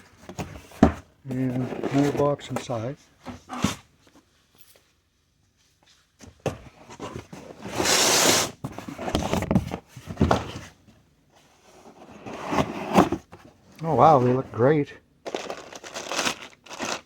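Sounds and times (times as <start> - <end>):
tape or cardboard tearing: 7.7 - 8.6
cardboard packaging rustling: 15.3 - 17.0.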